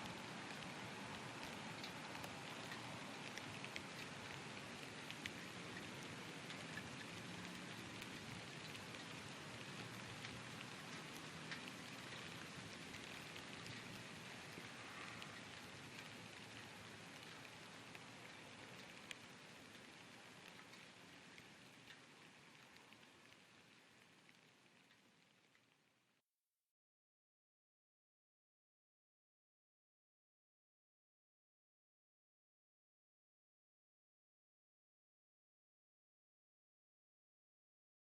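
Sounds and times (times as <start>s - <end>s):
drops ticking on a surface: 0.0s - 25.1s
rain falling: 0.0s - 26.2s.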